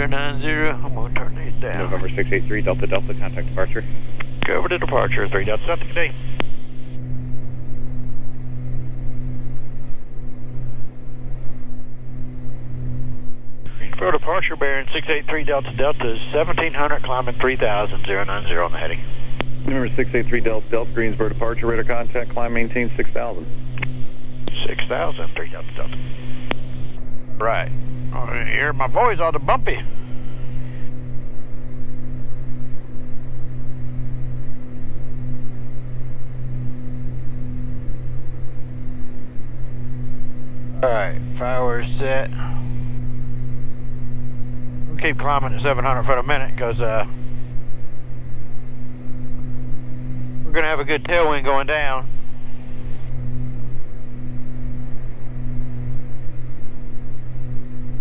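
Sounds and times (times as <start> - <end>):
aircraft engines droning in cabin: 0.0 - 58.0.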